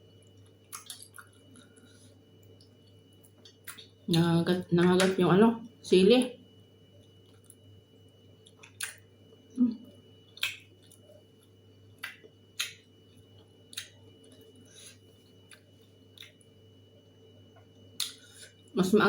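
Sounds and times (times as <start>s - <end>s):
person chewing crisply: 0.2s - 4.0s.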